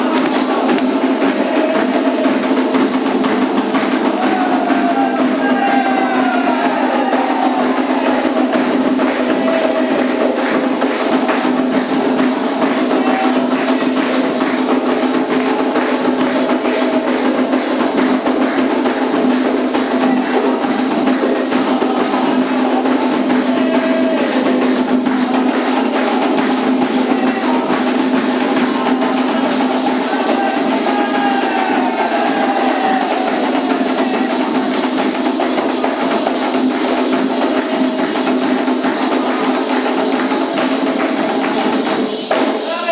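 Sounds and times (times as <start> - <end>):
hand drums and percussion: 0.0 - 42.9
voices singing: 0.0 - 42.9.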